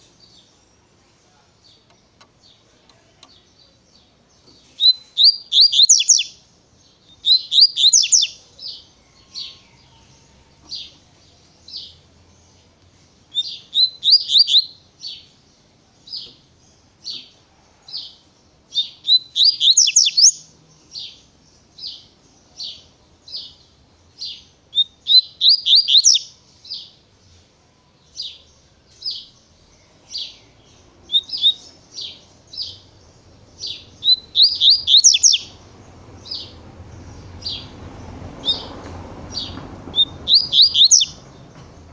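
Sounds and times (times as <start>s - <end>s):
bird singing high sweeping notes: 29.0s - 41.3s.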